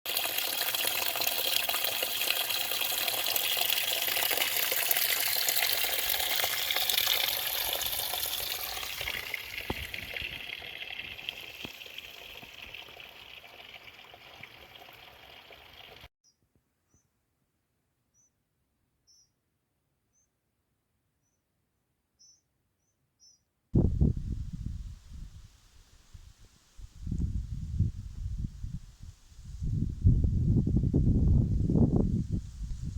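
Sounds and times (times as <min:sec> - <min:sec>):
rushing water hiss: 0:00.1 - 0:16.1.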